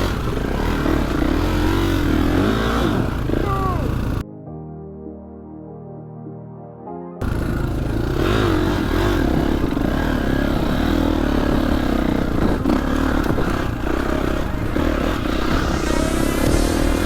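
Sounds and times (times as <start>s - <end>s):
bike rattling: 0.0s - 4.2s, 7.2s - 16.2s
dirt bike engine revving: 0.0s - 4.2s, 7.2s - 17.0s
wind: 0.0s - 4.2s, 7.2s - 17.0s
music: 0.0s - 17.0s.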